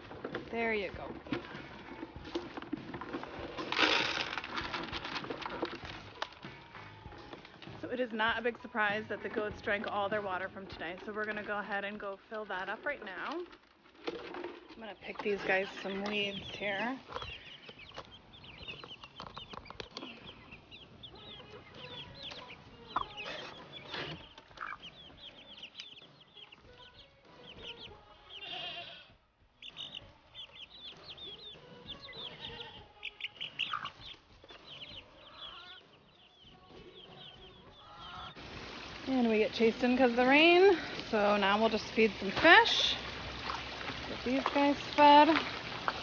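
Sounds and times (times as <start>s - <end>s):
knocks and rustles: 0.0s - 7.9s, 12.8s - 20.2s
chickens clucking: 0.0s - 46.0s
high bird chirps: 29.6s - 38.4s.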